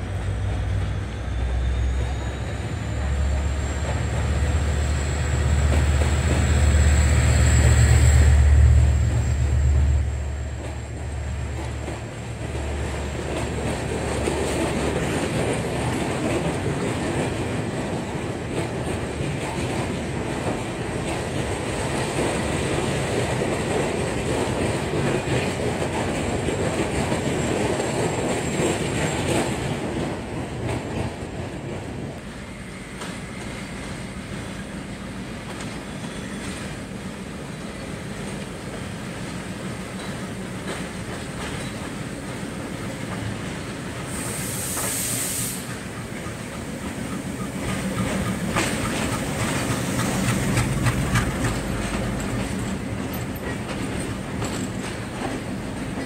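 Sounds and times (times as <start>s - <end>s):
diesel locomotive engine rumbling: 0.0s - 56.0s
train wheels rushing on rails: 0.0s - 56.0s
clicking over rail joints: 45.7s - 56.0s.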